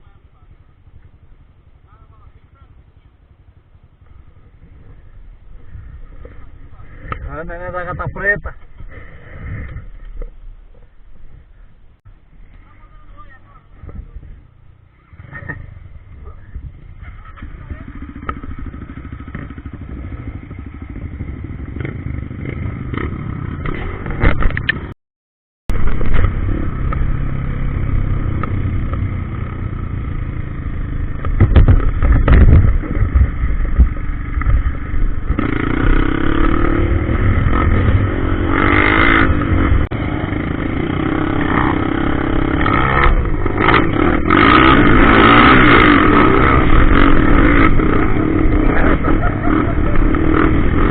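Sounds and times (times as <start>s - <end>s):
motorcycle engine revving: 0.0s - 11.6s, 14.0s - 24.9s, 25.7s - 50.9s.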